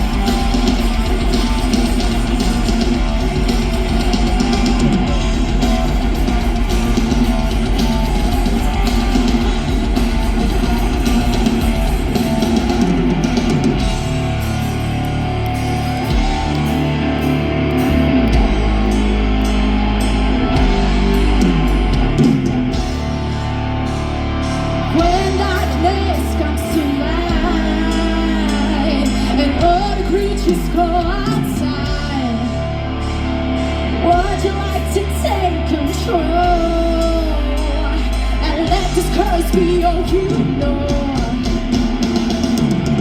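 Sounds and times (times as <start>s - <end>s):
live rock band playing: 0.0s - 43.0s
person singing: 24.8s - 32.7s, 33.9s - 43.0s.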